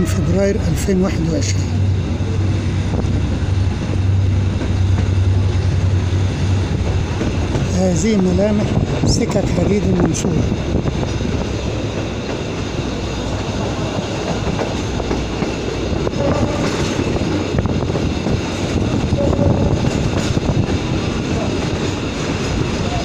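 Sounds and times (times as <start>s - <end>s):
train wheels on track: 0.0s - 23.0s.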